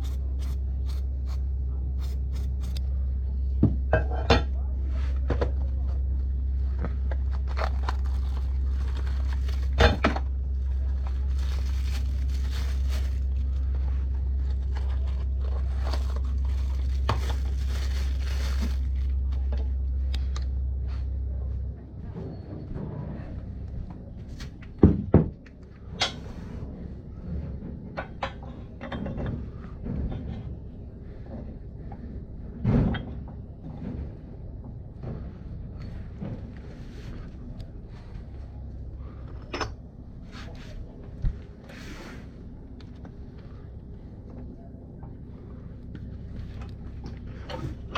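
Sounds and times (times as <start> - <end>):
low hum: 0.0 - 47.9.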